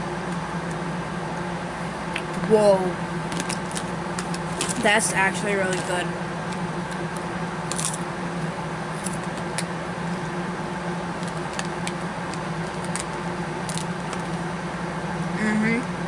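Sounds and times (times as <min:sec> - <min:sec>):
low steady hum: 0:00.0 - 0:16.0
chewing crunchy popcorn: 0:11.2 - 0:14.4.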